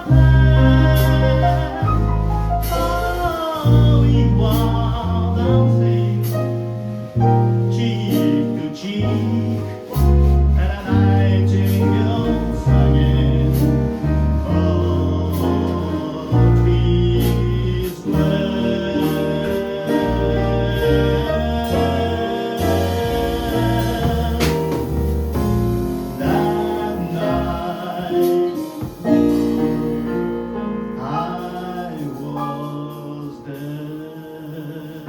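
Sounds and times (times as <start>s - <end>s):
person singing: 0.0s - 30.0s, 30.9s - 35.0s
held bass notes: 0.0s - 33.7s
jazz piano: 0.0s - 35.0s.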